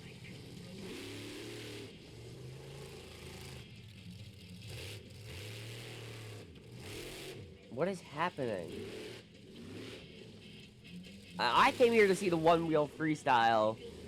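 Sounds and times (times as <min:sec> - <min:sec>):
truck engine revving: 0:04.6 - 0:07.5, 0:08.2 - 0:14.0.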